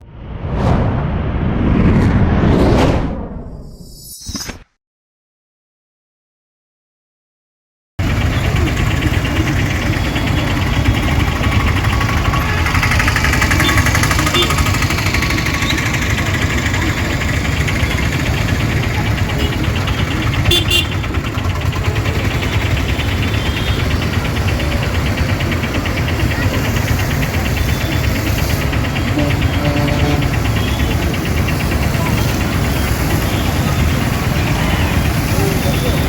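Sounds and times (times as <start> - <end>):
fire engine running: 8.0 - 36.0.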